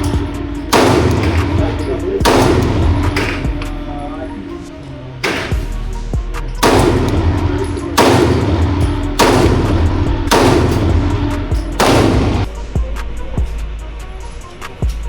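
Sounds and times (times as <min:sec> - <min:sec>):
pistol shots with echo: 0:00.0 - 0:04.0, 0:05.2 - 0:05.9, 0:06.6 - 0:12.6
background music: 0:00.0 - 0:15.0.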